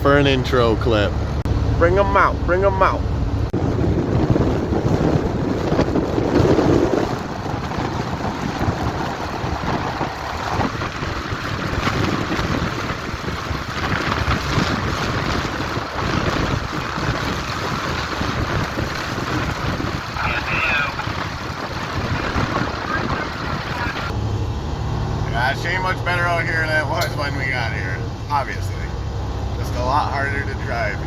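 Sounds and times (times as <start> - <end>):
heavy truck running: 0.0 - 31.0
wind noise on microphone: 1.2 - 25.2.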